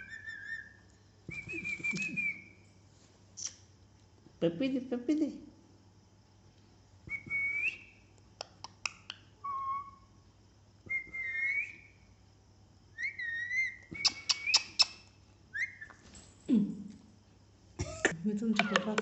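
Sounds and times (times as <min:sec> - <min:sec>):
parrot whistled calls: 0:00.0 - 0:00.8, 0:09.4 - 0:10.1, 0:11.0 - 0:11.9, 0:13.0 - 0:16.0.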